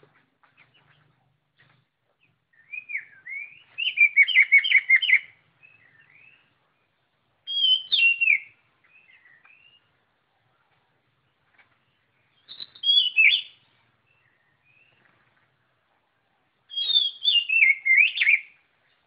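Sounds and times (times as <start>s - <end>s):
bird singing whistled notes: 2.2s - 6.6s, 7.4s - 10.0s, 12.1s - 15.0s, 16.6s - 18.7s.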